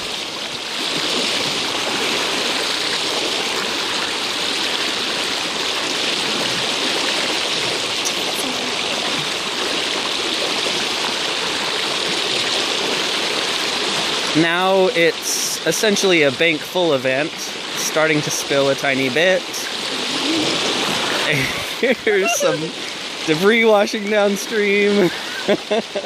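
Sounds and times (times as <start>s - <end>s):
floodwater rushing in creek: 0.0s - 26.0s.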